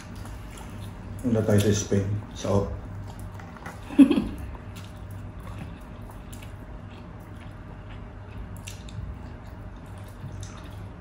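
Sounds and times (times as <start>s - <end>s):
low steady hum: 0.0s - 11.0s
person chewing and eating: 0.0s - 11.0s.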